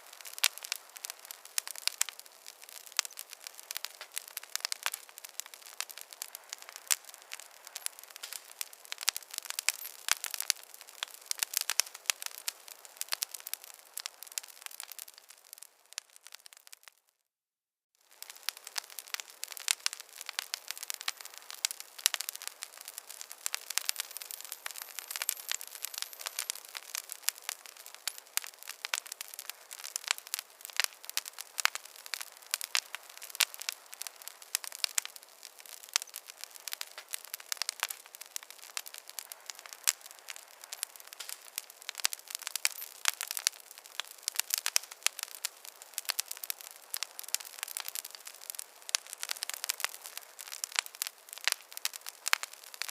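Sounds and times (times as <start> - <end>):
fire hiss: 0.0 - 15.7, 18.1 - 52.9
wood fire crackling: 0.0 - 17.1, 18.0 - 52.9
sharp pops and snaps: 18.1 - 52.9.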